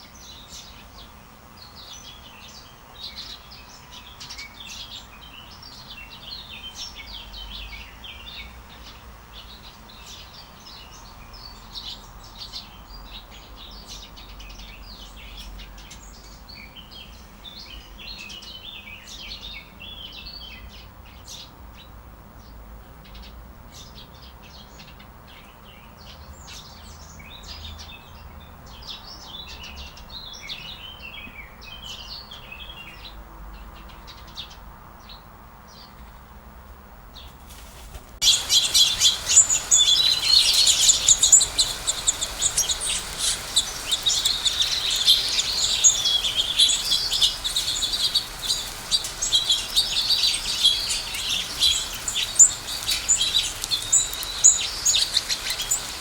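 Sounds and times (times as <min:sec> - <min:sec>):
birds chirping and singing: 0:38.2 - 0:56.0.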